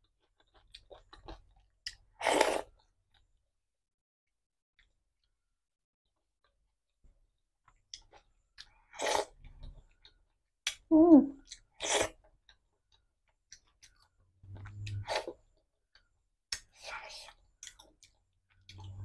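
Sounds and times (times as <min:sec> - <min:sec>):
wet chewing and lip smacks: 0:09.4 - 0:15.3, 0:15.9 - 0:19.0.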